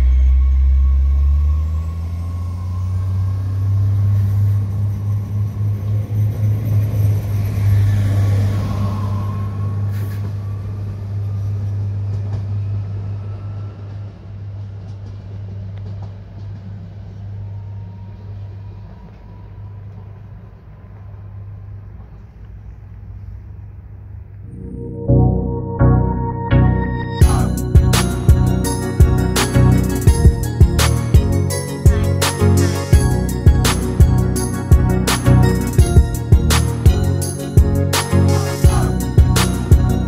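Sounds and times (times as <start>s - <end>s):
faint rising whine: 0.0s - 40.0s
train pulling away droning: 0.0s - 40.0s.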